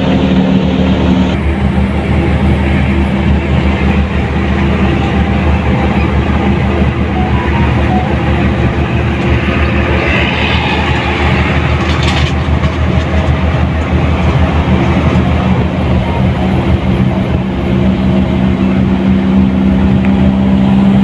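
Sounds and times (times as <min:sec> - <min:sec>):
bus diesel engine droning: 0:00.0 - 0:21.0
road noise: 0:00.0 - 0:21.0.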